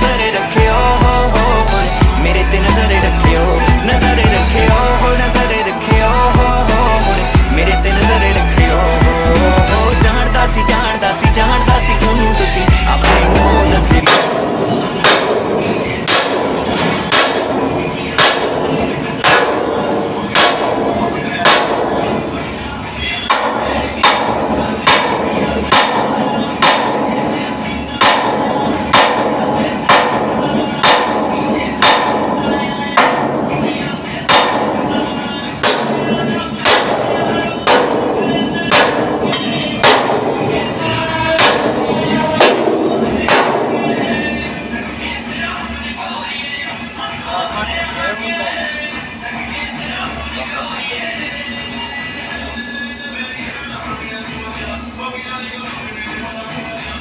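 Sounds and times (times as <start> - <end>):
music: 0.0 - 57.0
steady background noise: 0.0 - 57.0
hammer striking steel: 13.0 - 22.3, 23.3 - 27.4, 28.0 - 44.2
hammer blows on steel: 34.3 - 44.1.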